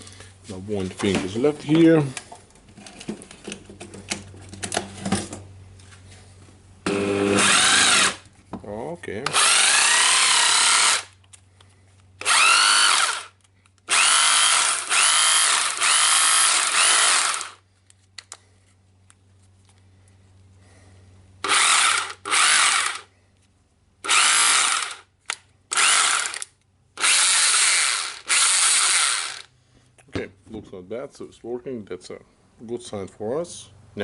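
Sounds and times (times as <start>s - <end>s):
rotary hammer motor whining: 6.9s - 8.2s, 9.3s - 11.1s, 12.2s - 17.6s, 21.4s - 23.1s, 24.0s - 25.1s, 25.7s - 29.5s.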